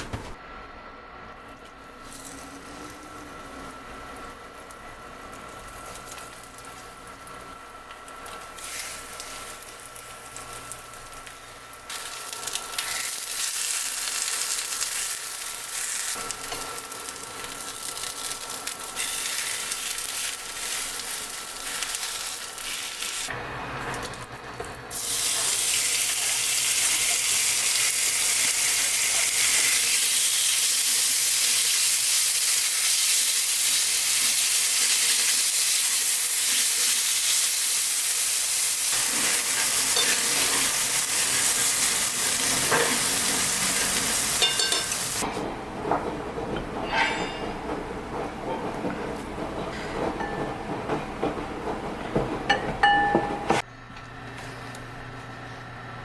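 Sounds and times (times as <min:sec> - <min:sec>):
food sizzling in a pan: 0:08.1 - 0:23.3, 0:24.9 - 0:45.2.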